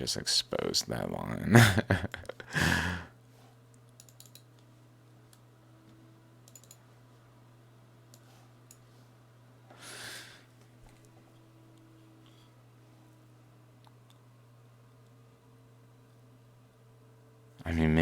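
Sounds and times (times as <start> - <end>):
low electrical hum: 0.0 - 18.0
computer mouse clicks: 3.7 - 4.7, 6.4 - 6.8.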